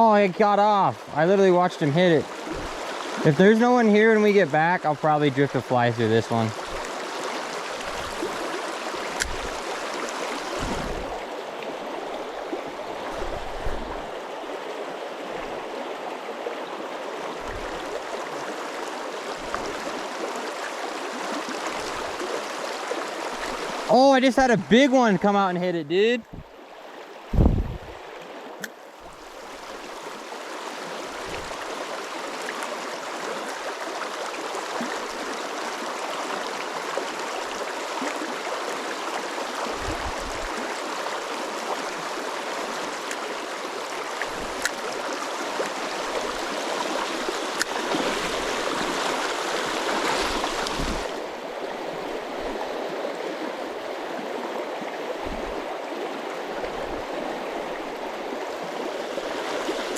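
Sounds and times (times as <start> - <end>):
river rushing over rocks: 0.0 - 24.6, 29.2 - 59.9
soft low knocks: 13.2 - 14.2
loud thump: 27.3 - 27.8.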